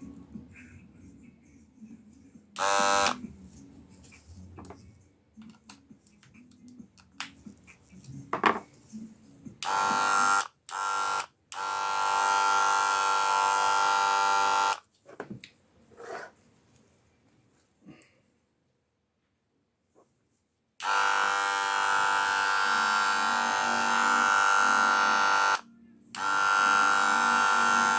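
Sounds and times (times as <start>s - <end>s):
hair clipper buzzing: 2.6s - 3.2s, 9.6s - 14.8s, 20.8s - 25.6s, 26.2s - 27.9s.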